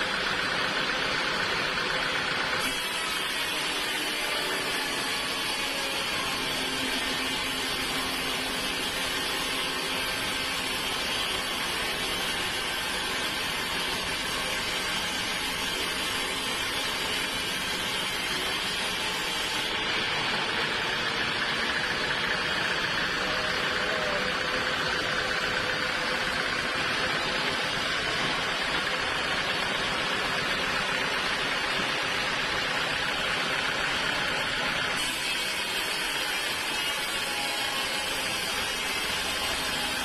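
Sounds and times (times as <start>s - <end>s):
sawmill machinery running: 0.0s - 40.0s.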